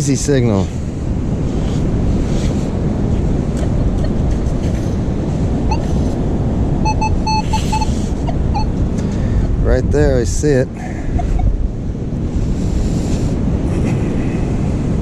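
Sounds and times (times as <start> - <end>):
wind buffeting microphone: 0.0 - 15.0
metal detector beeps: 5.7 - 5.9, 6.8 - 8.8.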